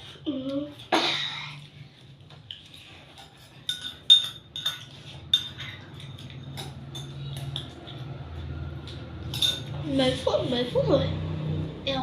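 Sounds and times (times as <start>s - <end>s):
cutlery and dishes clinking: 2.4s - 10.2s.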